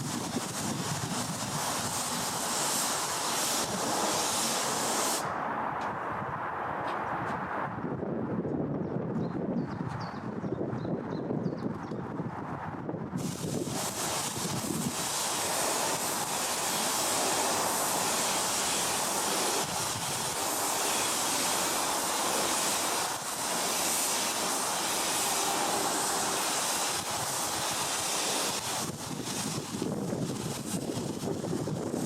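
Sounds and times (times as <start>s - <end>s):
paint spray gun hissing: 0.0s - 5.3s, 13.2s - 32.0s.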